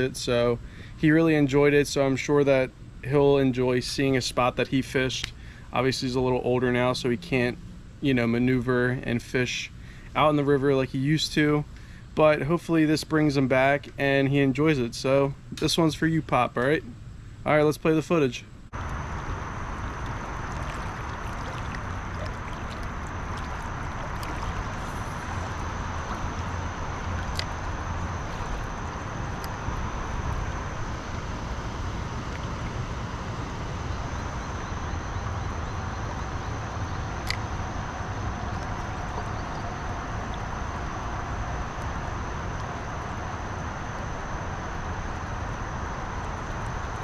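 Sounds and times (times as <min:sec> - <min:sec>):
wind on microphone: 0:18.8 - 0:36.3
moving water: 0:18.8 - 0:47.0.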